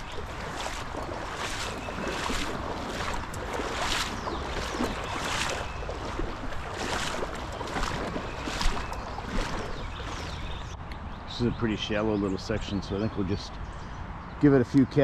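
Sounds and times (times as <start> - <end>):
legs wading through water: 0.0 - 10.8
rushing water: 0.0 - 10.8.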